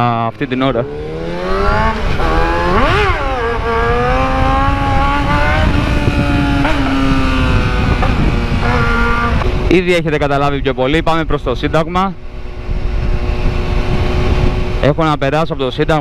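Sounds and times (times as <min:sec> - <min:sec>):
motorcycle engine accelerating: 0:00.4 - 0:10.4, 0:11.2 - 0:15.2.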